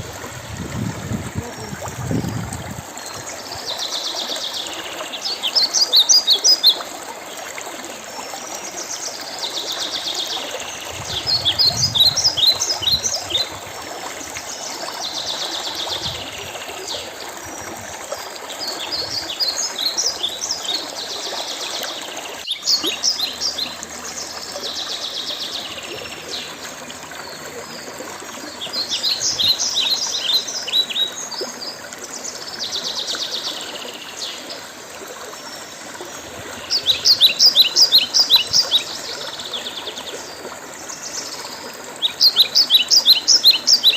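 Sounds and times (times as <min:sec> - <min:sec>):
running stream: 0:00.0 - 0:43.9
songbird singing trills and whistles: 0:36.7 - 0:38.9.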